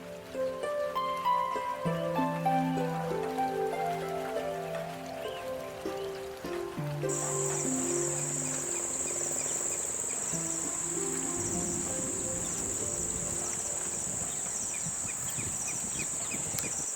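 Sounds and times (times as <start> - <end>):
soft sustained music notes: 0.0 - 16.6
high-pitched insect trill: 7.1 - 16.9.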